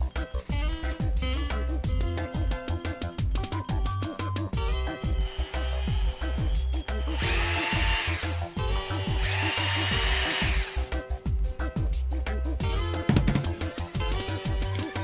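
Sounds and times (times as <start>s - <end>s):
background music with steady beat: 0.0s - 15.0s
cordless drill motor whining: 4.8s - 10.9s.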